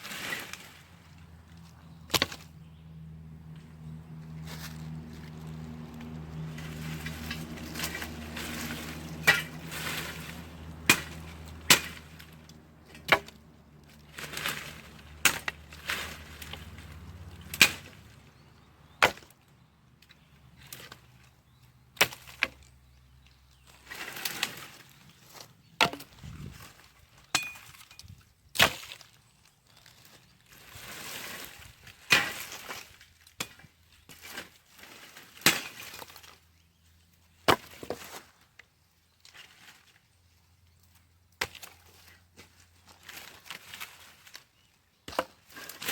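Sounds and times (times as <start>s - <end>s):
dry wood cracking and snapping: 4.6s - 18.1s.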